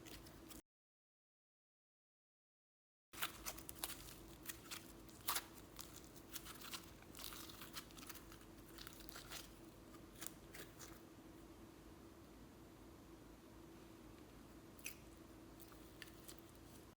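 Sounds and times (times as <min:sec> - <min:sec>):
slime crackling and popping: 0:03.2 - 0:11.0.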